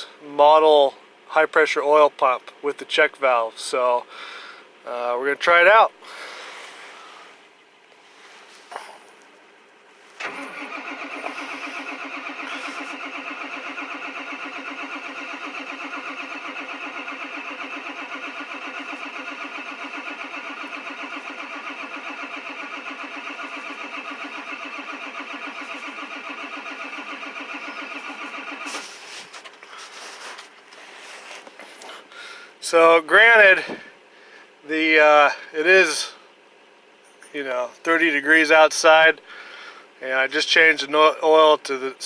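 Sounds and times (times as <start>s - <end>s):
diesel engine cranking: 10.0s - 41.8s.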